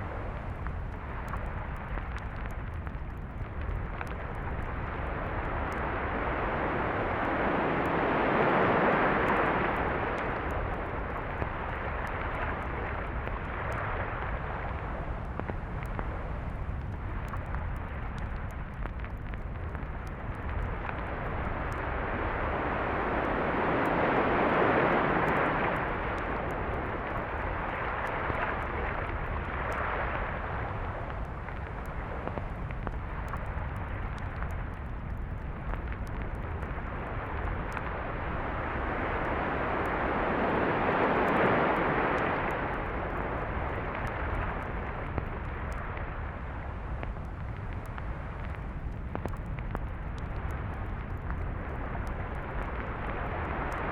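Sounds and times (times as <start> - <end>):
ocean surf on a beach: 5.3 - 11.1, 22.1 - 26.7, 38.3 - 43.6.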